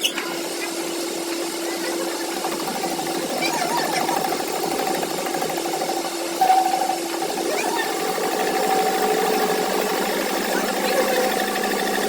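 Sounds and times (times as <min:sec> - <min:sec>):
machine humming: 0:00.0 - 0:12.0
mechanical clatter: 0:00.0 - 0:12.0.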